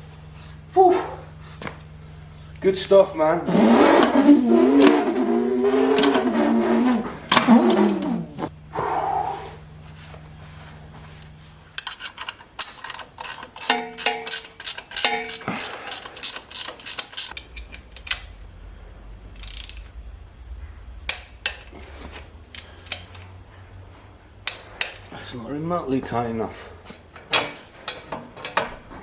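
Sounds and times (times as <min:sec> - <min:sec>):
ratchet wrench clicking: 0:11.8 - 0:18.4, 0:19.3 - 0:19.9, 0:22.5 - 0:23.3, 0:24.4 - 0:25.1.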